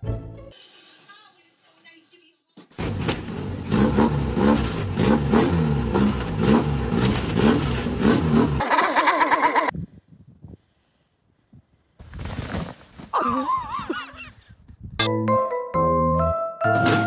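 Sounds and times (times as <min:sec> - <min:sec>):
car engine revving: 0:02.8 - 0:08.7.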